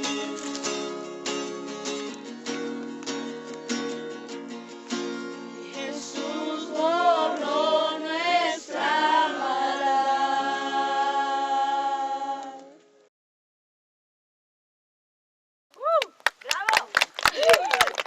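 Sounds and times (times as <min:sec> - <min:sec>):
strummed acoustic guitar: 0:00.0 - 0:08.8
group singing worship song: 0:05.6 - 0:12.8.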